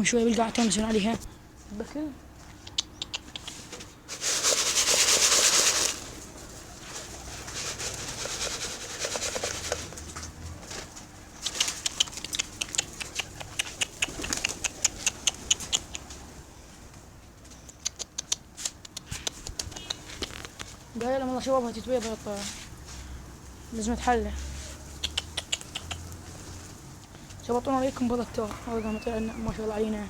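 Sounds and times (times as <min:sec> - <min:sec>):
pigeon wings flapping: 0:04.1 - 0:16.4.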